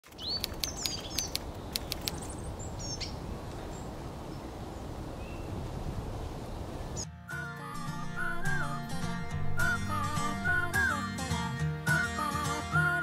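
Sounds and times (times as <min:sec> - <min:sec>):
small birds chirping: 0:00.0 - 0:07.1
low outdoor rumble: 0:07.8 - 0:10.9.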